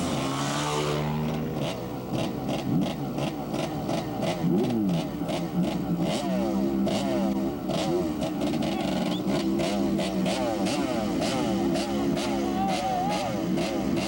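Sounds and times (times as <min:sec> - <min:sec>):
motorcycle engines revving: 0:00.0 - 0:14.0.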